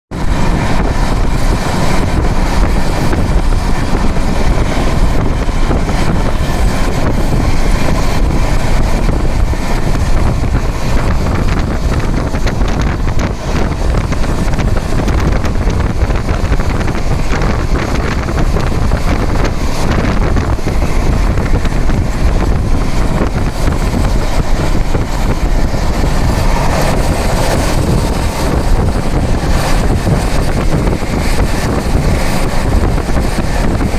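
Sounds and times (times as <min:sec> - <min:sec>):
train rumbling at speed: 0:00.1 - 0:33.9
wind buffeting microphone: 0:00.1 - 0:33.9.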